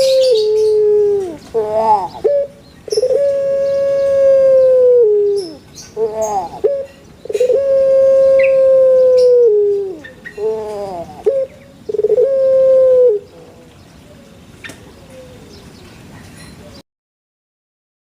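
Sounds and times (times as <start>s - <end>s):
bird calling: 0.0s - 13.6s.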